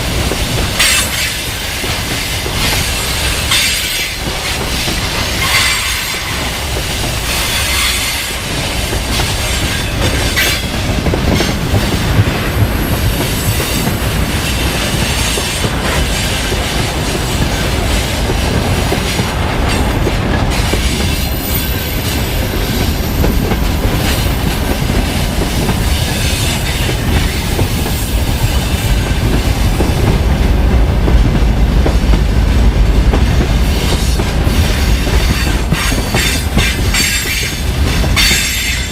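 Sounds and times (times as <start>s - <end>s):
freight train rumble: 0.0s - 38.9s.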